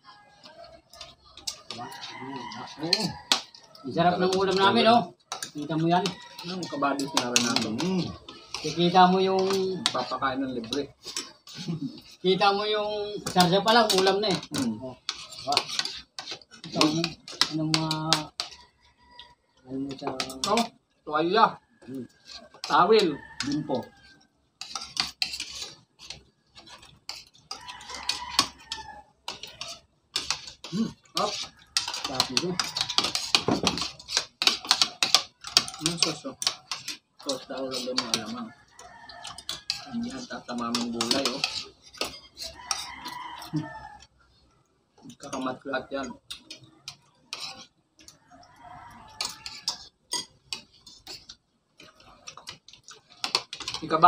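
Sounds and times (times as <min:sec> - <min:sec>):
cutlery clinking on plates: 0:00.9 - 0:12.1, 0:13.2 - 0:18.6, 0:19.9 - 0:20.7, 0:24.6 - 0:43.7, 0:49.1 - 0:54.0.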